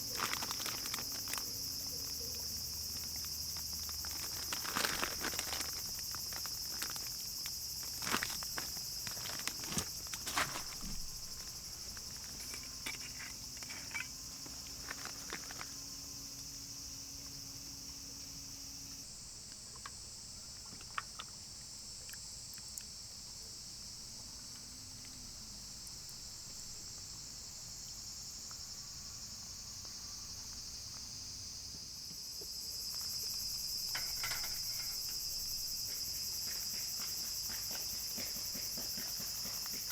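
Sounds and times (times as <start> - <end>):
insects shrilling: 0.0 - 19.3.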